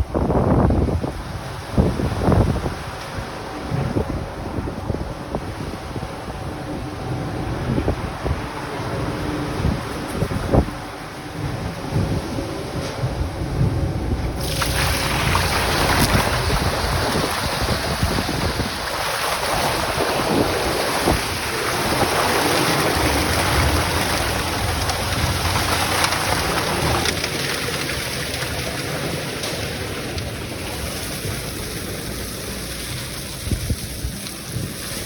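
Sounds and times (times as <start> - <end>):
diesel engine rumble: 0.0 - 35.0
hose spraying: 14.4 - 35.0.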